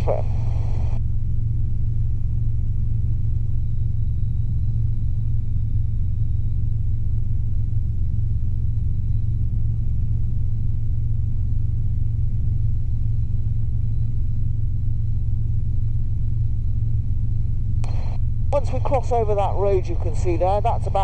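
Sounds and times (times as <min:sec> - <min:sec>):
helicopter drone in flight: 0:17.9 - 0:21.0.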